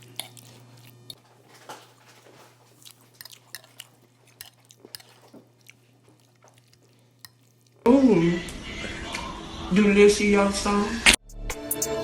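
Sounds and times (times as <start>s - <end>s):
person chewing: 0.0s - 7.9s.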